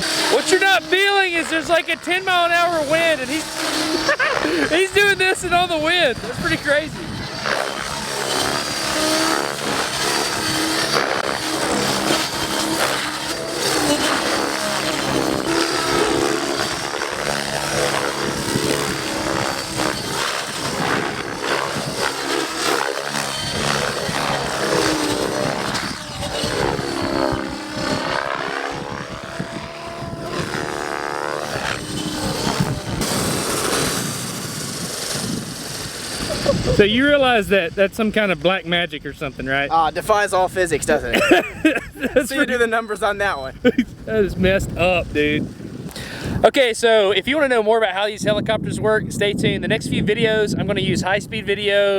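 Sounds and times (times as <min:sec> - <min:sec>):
model helicopter rotor whine: 0:00.0 - 0:51.9.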